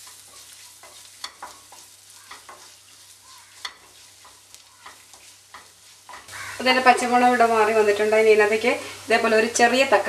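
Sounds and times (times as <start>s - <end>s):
wooden spatula stirring and scraping: 0.0s - 7.2s
masala sizzling in a pan: 0.0s - 10.0s
spatula tapping against pan: 0.8s - 2.7s, 3.6s - 6.3s.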